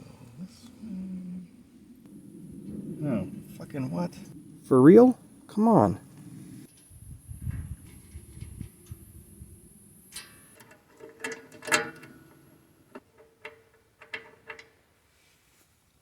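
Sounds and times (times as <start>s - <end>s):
metal hardware clicking: 10.2s - 14.8s.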